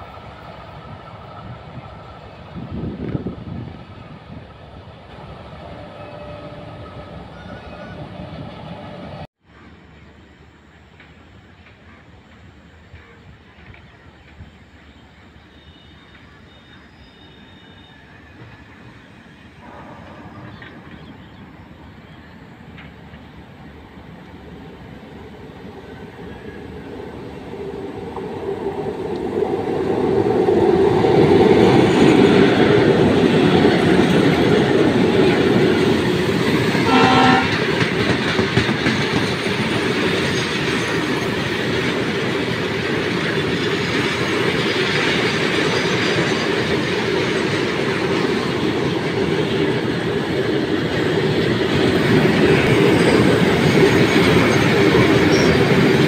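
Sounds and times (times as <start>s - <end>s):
train rumble and wheel clatter: 0.0s - 56.0s
train horn blast: 5.6s - 9.1s, 19.6s - 20.7s, 36.8s - 37.7s.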